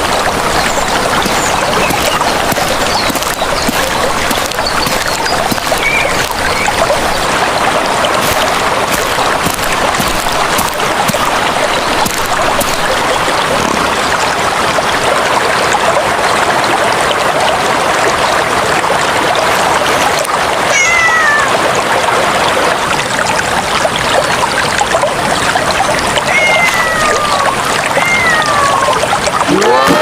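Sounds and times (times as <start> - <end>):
short sharp splashes: 0.0 - 13.6
water rushing and splashing: 0.0 - 30.0.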